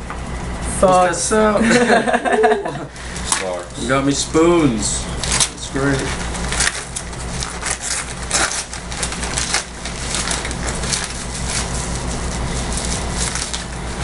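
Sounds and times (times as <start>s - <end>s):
wrapping paper crinkling and tearing: 4.8s - 14.0s.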